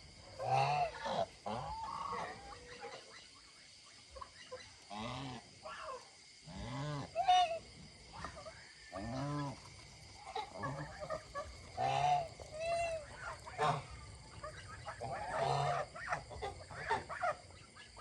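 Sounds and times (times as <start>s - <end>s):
geese honking: 0.4s - 3.3s, 10.2s - 18.0s.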